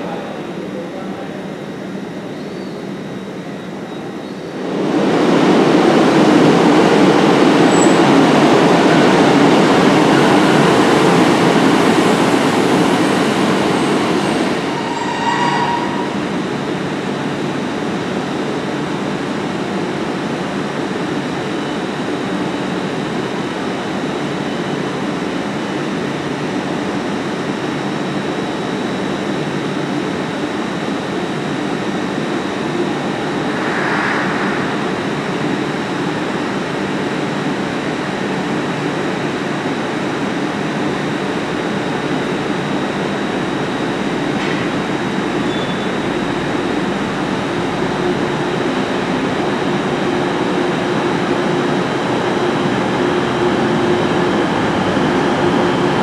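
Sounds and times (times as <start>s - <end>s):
train rumble: 4.0s - 20.1s, 31.0s - 37.7s
short high squeal: 13.8s - 17.1s, 32.5s - 36.0s, 45.5s - 45.9s.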